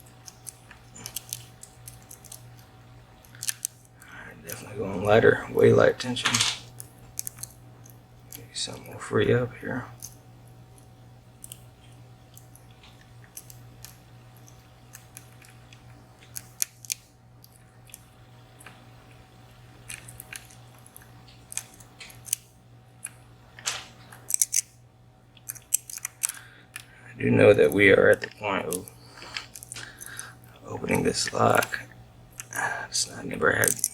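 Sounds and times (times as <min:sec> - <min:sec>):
faint low hum: 0:00.0 - 0:33.9
lock pick clicking and scraping: 0:24.2 - 0:24.7, 0:25.4 - 0:26.9.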